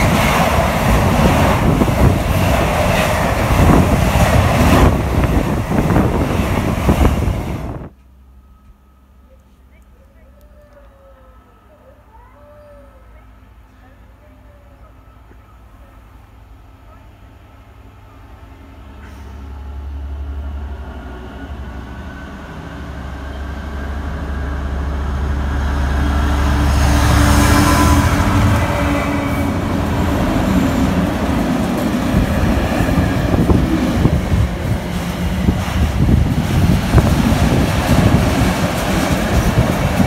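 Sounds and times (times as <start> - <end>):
diesel locomotive engine drone: 0.0 - 40.0
train wheels clattering on rails: 29.7 - 40.0.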